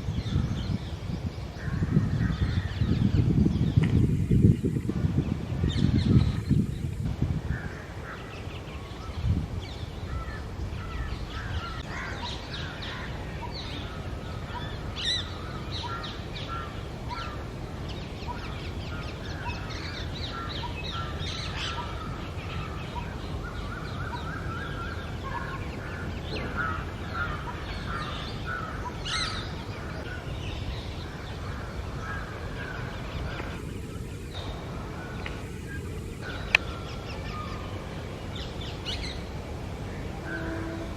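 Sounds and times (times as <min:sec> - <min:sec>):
steady low rumble: 0:29.4 - 0:40.4.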